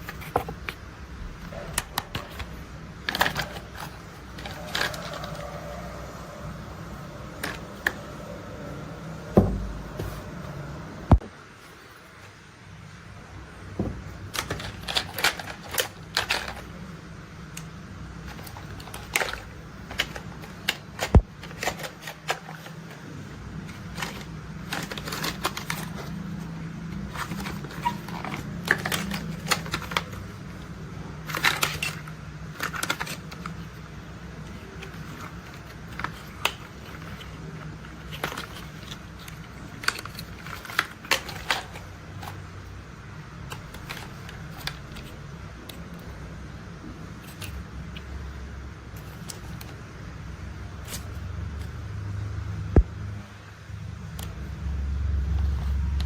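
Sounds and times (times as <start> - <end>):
plastic toys clicking and clattering: 0.0 - 6.2, 7.1 - 8.2, 14.0 - 50.1
low steady hum: 0.0 - 56.0.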